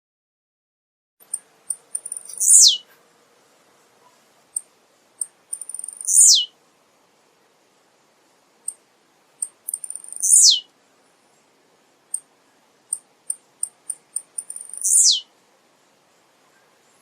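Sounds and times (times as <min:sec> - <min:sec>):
bird high ticks: 0:01.2 - 0:02.8, 0:04.5 - 0:06.4, 0:09.4 - 0:10.6, 0:12.9 - 0:15.2.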